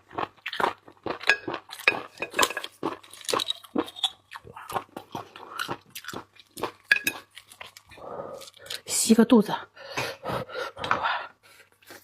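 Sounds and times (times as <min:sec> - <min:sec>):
crunching and wet chewing: 0:00.0 - 0:08.9.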